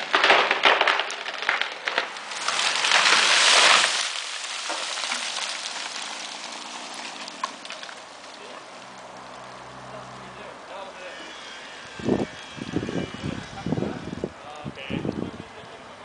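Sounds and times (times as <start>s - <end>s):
tree trunk crashing down: 0.0s - 8.6s
tree cracking and snapping: 0.0s - 9.6s
branches rustling: 0.0s - 10.7s.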